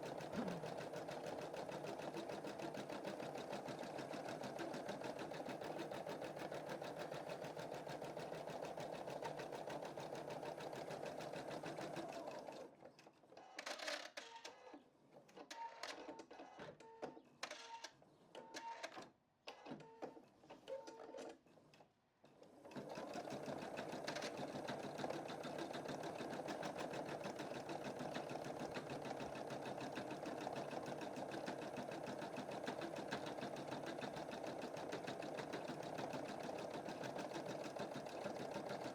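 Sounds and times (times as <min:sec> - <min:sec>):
embroidery machine stitching: 0:00.1 - 0:12.7, 0:22.7 - 0:38.9.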